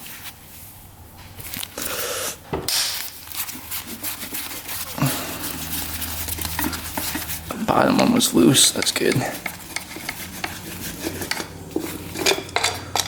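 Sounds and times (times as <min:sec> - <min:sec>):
screwdriver clicking and scraping: 0:08.7 - 0:13.0.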